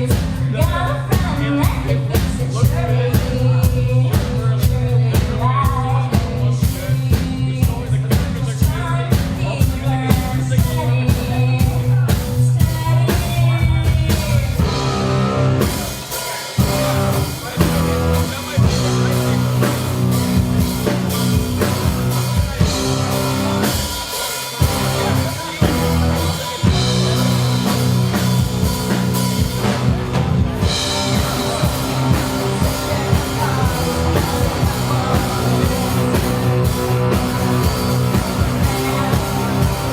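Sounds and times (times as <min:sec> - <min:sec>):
drum kit: 0:00.0 - 0:39.9
live rock band playing: 0:00.0 - 0:39.9
person singing: 0:00.0 - 0:39.9.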